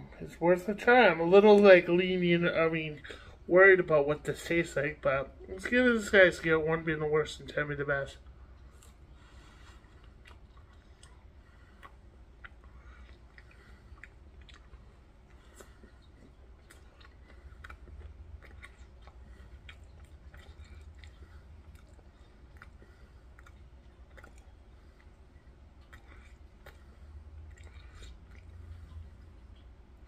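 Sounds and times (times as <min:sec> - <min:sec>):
person chewing: 0:08.2 - 0:30.0
wet mouth clicks and smacks: 0:10.0 - 0:29.8.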